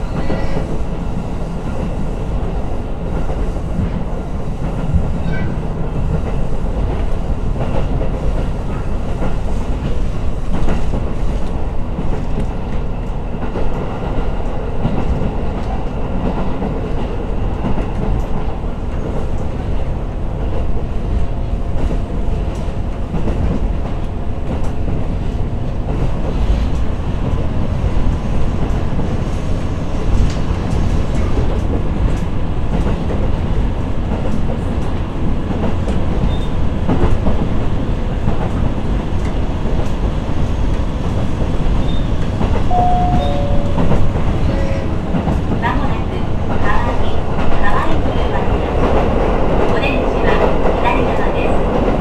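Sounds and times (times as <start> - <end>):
clickety-clack over rail joints: 0.0 - 42.7, 43.7 - 52.0
railcar engine and wheels rumbling: 0.0 - 52.0
two short tones: 42.7 - 44.9.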